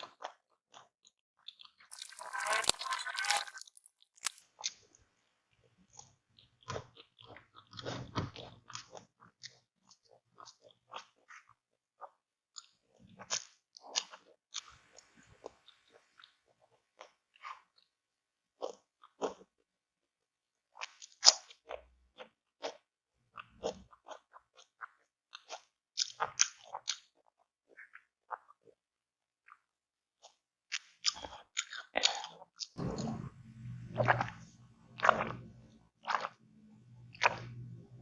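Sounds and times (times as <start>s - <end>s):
crunchy bites: 1.9s - 4.4s
wet chewing: 1.9s - 4.4s.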